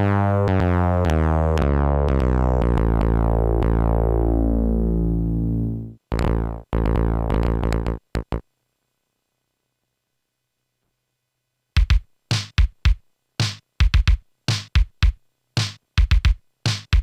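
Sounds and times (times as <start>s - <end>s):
deep buzzy synth tone: 0.0s - 8.4s
drum machine sample hits: 5.4s - 8.4s, 11.8s - 17.0s.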